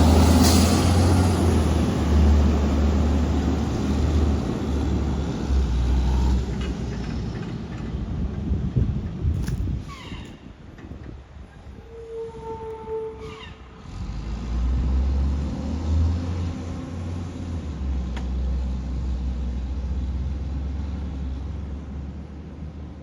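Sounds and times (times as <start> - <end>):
diesel truck engine rumbling: 0.0 - 9.9.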